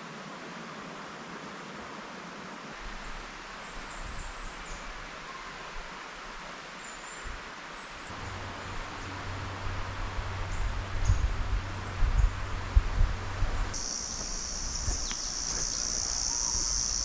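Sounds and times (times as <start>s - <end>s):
forest rustling hiss: 0.0s - 17.0s
wind buffeting microphone: 8.2s - 17.0s
faint high chirps: 13.8s - 17.0s.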